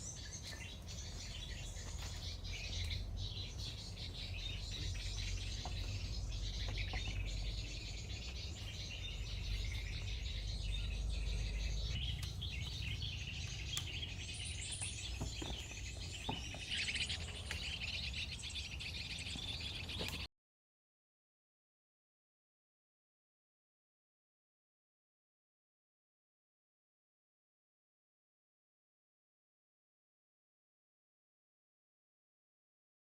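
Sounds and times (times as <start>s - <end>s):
birds chirping and singing: 0.0s - 20.3s
low rumble: 1.0s - 18.0s.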